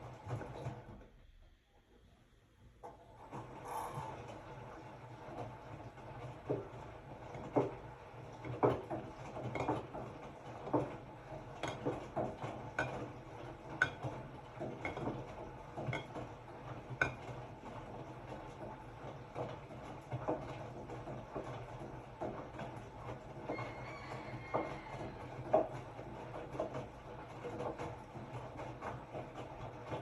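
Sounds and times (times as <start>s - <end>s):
washing machine motor hum: 0.0s - 30.0s.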